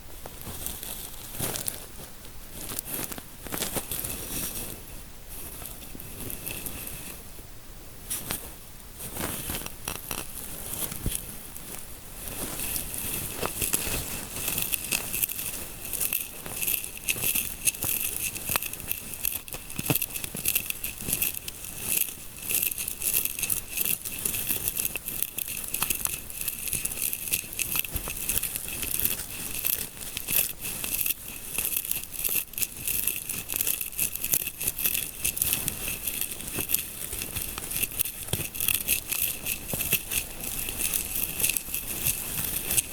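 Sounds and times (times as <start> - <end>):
fingers scratching scalp: 12.2 - 42.9.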